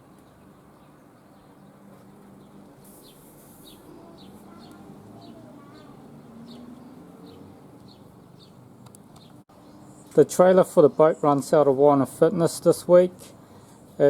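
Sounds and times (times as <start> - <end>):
faint bird chirps: 2.4 - 8.6.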